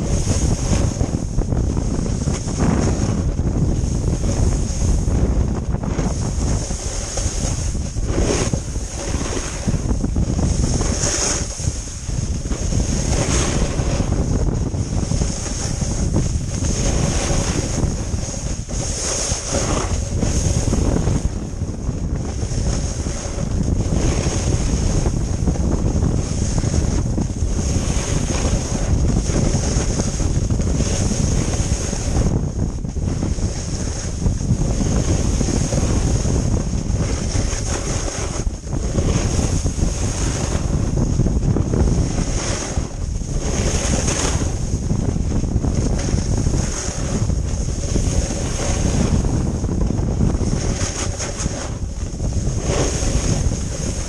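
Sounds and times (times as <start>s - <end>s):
heavy low rumble: 0.0s - 54.0s
wind buffeting microphone: 0.0s - 54.0s.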